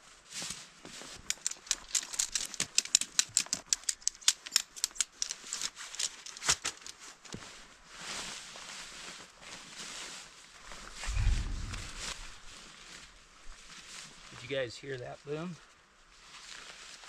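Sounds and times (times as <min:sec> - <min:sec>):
rapid sharp clicks: 0:01.2 - 0:05.4.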